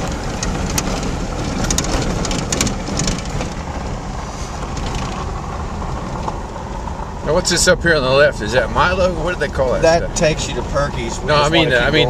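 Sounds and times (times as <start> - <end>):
rattles and knocks: 0.0 - 6.5
car road and wind noise: 0.0 - 12.0.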